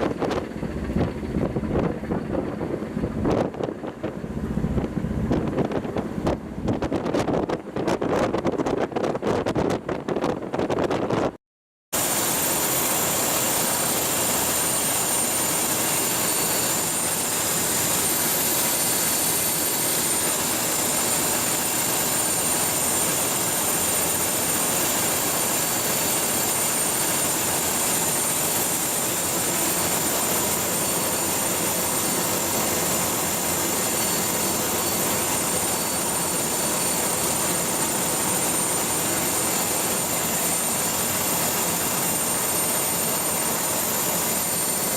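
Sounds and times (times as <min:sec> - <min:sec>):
ship diesel engine roaring: 0:00.0 - 0:06.9, 0:12.0 - 0:44.9
high whine: 0:26.5 - 0:44.9.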